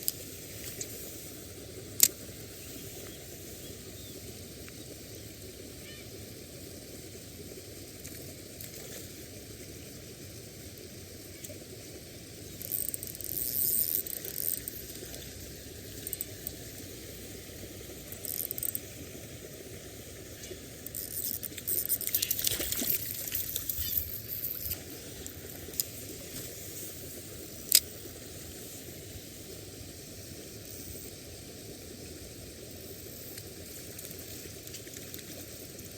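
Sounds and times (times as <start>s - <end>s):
water ambience: 0.0s - 35.9s
fish splashing at the surface: 20.7s - 24.8s.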